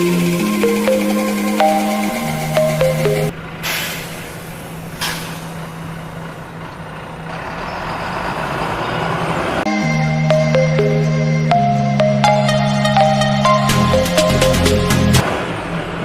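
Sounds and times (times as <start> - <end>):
diesel bus engine humming: 0.0 - 16.0
air brakes hissing: 3.6 - 5.9.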